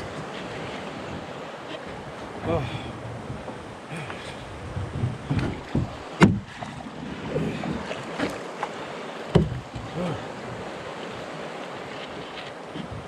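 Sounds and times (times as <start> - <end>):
water sounds: 0.0 - 13.0
sharp knocks on canoe: 5.0 - 8.7, 9.3 - 10.7.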